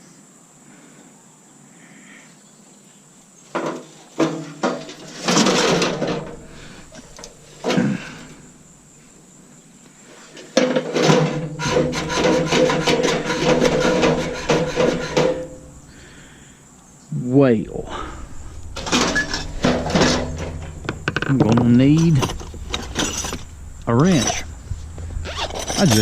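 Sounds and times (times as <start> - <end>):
metal coffee maker clattering: 4.2 - 8.5, 10.6 - 16.0, 17.8 - 26.0
rapid clicking rattle: 11.2 - 16.2, 17.8 - 26.0.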